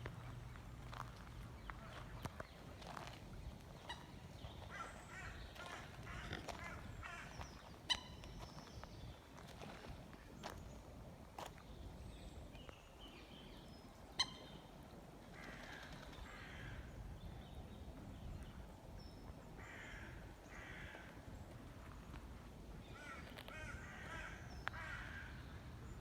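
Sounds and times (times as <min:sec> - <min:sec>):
harsh caw-like bird calls: 0:04.6 - 0:07.7, 0:15.3 - 0:16.9, 0:19.6 - 0:21.2, 0:22.9 - 0:25.5.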